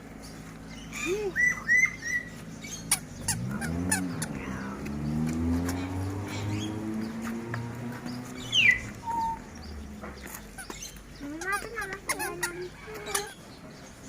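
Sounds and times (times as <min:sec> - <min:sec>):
bird chirping: 0:00.2 - 0:14.0
low hum rising in pitch: 0:03.1 - 0:10.2.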